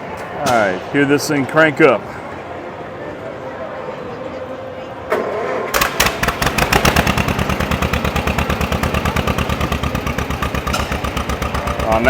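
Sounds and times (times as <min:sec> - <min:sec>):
tractor engine starting and popping: 0:05.7 - 0:12.0.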